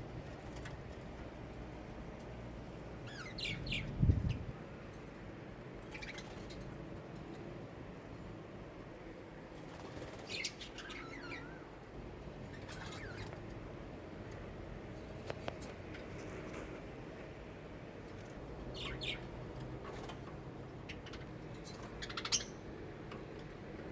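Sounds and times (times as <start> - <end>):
low background noise: 0.0 - 23.9
small birds chirping: 2.9 - 4.6, 5.8 - 7.5, 9.6 - 13.6, 18.1 - 23.2.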